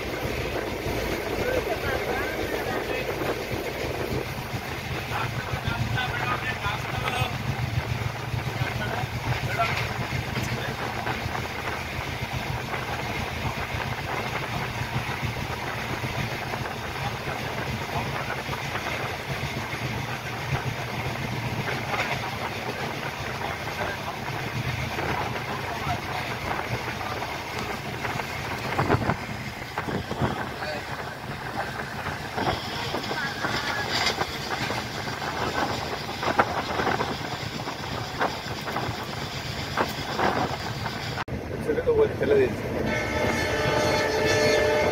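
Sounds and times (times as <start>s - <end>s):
train wheels rumbling on track: 0.0s - 44.9s
rushing air: 7.3s - 41.6s.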